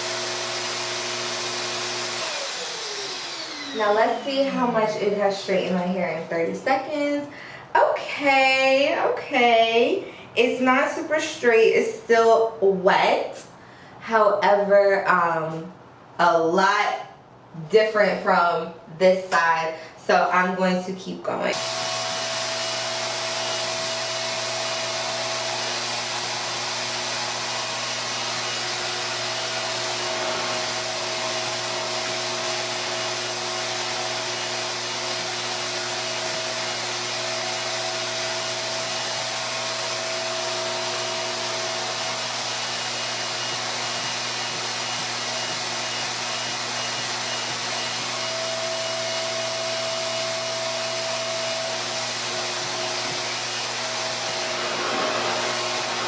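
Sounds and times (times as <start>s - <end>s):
hair dryer air rush and hum: 0.0s - 7.4s, 21.5s - 56.0s.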